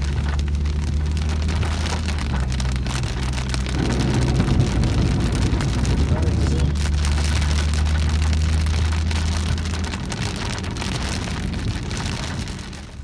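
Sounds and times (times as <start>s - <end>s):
rain pattering on car roof: 0.0s - 13.0s
vehicle drone: 0.0s - 13.0s.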